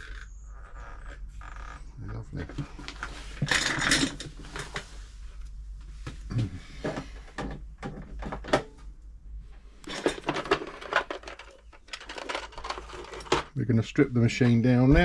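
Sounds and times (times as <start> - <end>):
hard parts clicking and clattering: 2.4 - 4.9, 6.8 - 8.8, 9.8 - 13.6.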